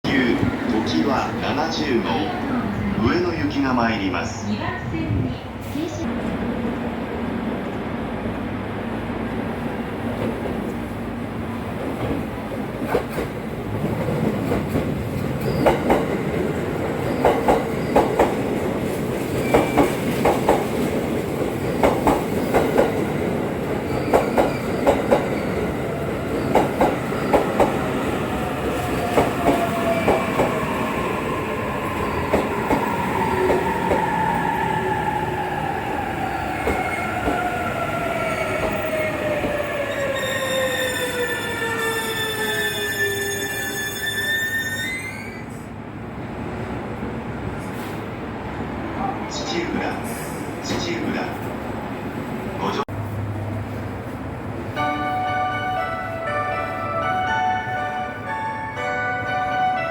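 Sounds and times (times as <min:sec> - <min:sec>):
train rumble: 0:00.0 - 0:40.4
train wheels clicking on rail joints: 0:23.9 - 0:25.5, 0:26.3 - 0:27.9
high brake squeals: 0:40.0 - 0:45.7.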